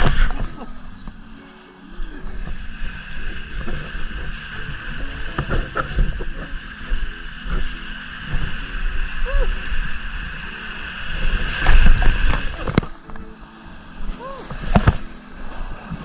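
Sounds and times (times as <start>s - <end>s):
water sloshing and splashing: 9.5s - 16.0s.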